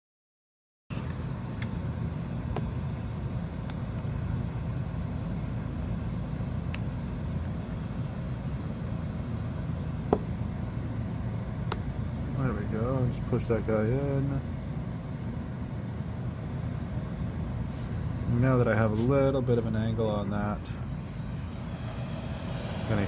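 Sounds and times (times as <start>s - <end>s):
low mechanical hum: 0.9s - 23.0s.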